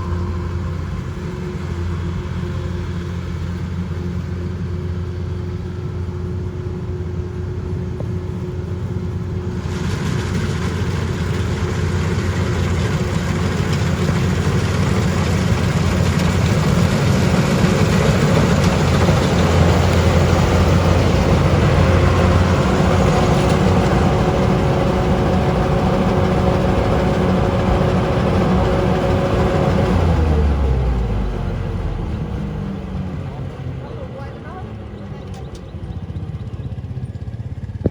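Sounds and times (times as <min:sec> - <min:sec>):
farm machine engine humming: 0:00.0 - 0:37.9
rushing clattering noise: 0:09.6 - 0:32.3.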